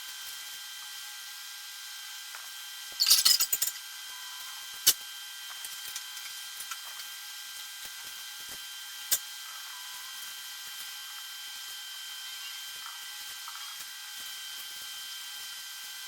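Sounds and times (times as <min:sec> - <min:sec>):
tent parts clattering: 0:03.0 - 0:03.6.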